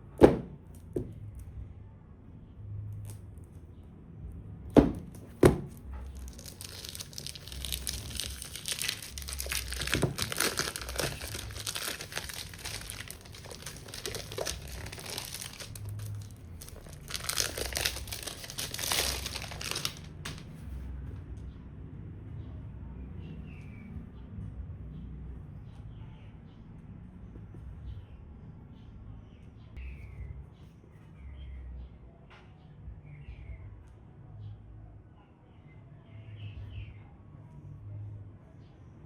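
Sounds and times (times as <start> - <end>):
box knocks: 0.2 - 1.2, 4.8 - 5.7
plastic wrap tearing and crinkling: 5.4 - 20.4.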